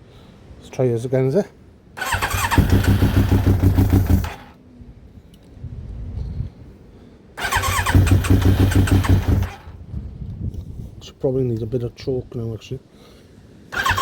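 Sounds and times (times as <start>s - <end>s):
motorcycle electric starter cranking: 2.0s - 4.5s, 7.4s - 9.8s, 13.8s - 14.0s.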